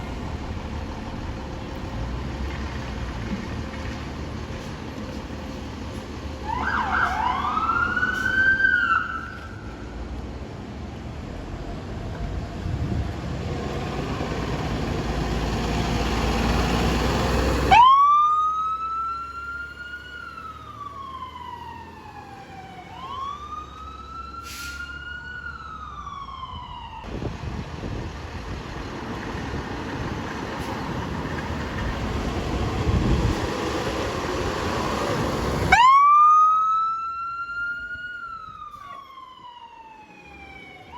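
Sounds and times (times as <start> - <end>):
traffic rumble: 0.0 - 40.9
emergency sirens wailing: 5.2 - 10.1, 13.2 - 27.7, 29.4 - 40.9.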